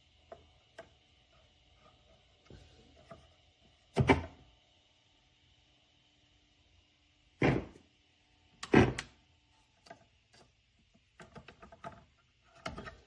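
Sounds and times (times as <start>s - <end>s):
heavy thumps on record player: 7.4s - 7.8s, 8.6s - 9.1s.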